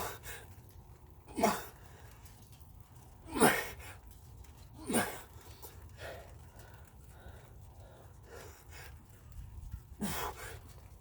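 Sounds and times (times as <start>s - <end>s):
man breathing hard in puffs: 4.9s - 9.2s, 9.9s - 11.0s.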